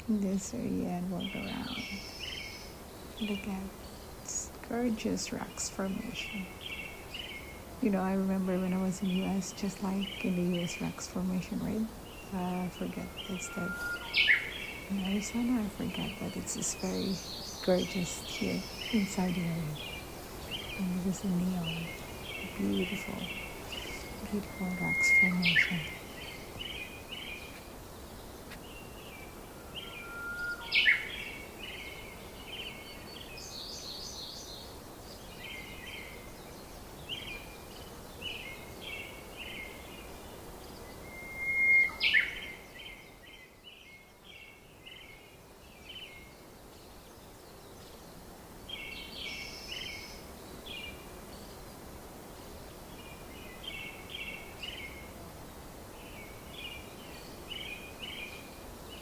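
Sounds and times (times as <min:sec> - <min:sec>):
small birds chirping: 0:00.0 - 0:59.0
sharp gliding bird call: 0:13.0 - 0:14.9, 0:29.2 - 0:31.4, 0:41.0 - 0:42.5.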